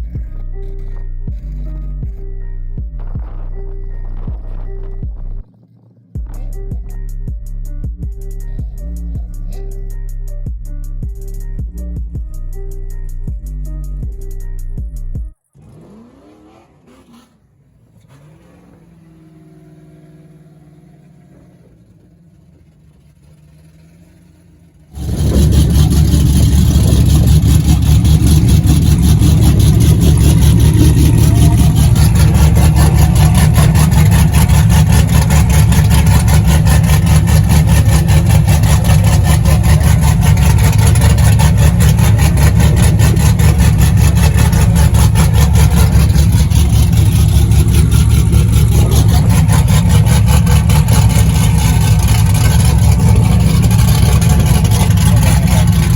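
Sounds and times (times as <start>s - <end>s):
loud car engine running: 0.0s - 5.5s, 15.6s - 55.9s.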